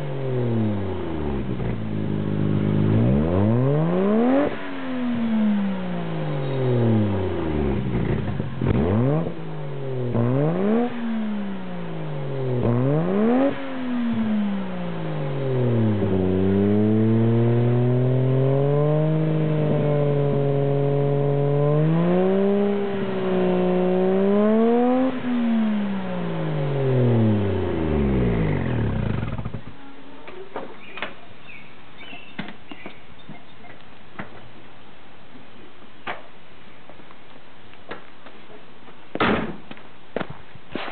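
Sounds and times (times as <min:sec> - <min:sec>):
car engine revving: 0:00.0 - 0:29.8.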